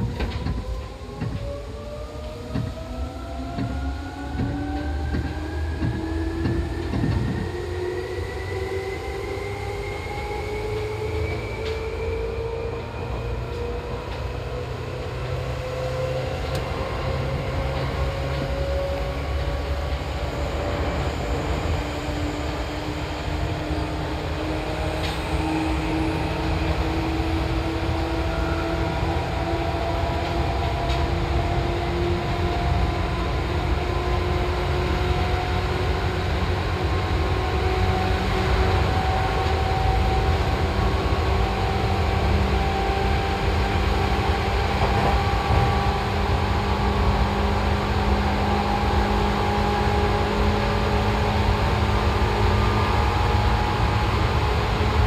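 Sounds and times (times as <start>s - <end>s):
electric train motor whine: 0.0s - 55.0s
wheels rumbling on rails: 0.0s - 55.0s
rail-joint clicks: 3.4s - 7.5s, 16.4s - 20.2s.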